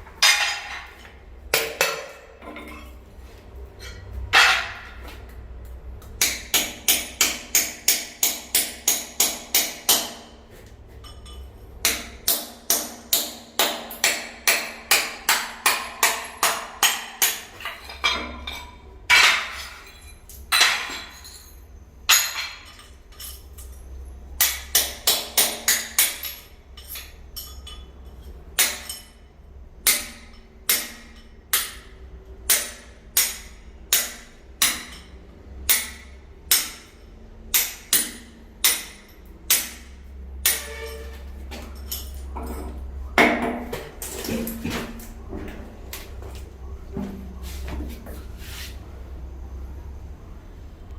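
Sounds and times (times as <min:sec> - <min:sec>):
hammer striking: 0:06.2 - 0:10.4, 0:37.5 - 0:41.8.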